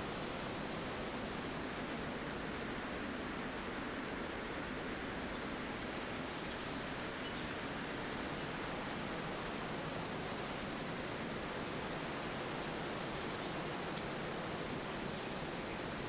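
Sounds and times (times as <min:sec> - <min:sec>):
wind through trees: 0:00.0 - 0:16.0.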